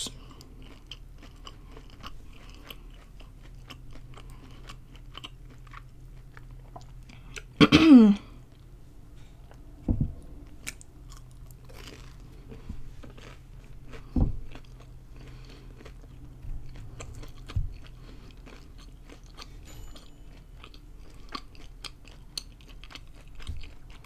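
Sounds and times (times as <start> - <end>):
crunchy chewing clicks: 0.3 - 7.6, 10.4 - 19.5, 20.6 - 24.0
low thumps: 9.8 - 10.4.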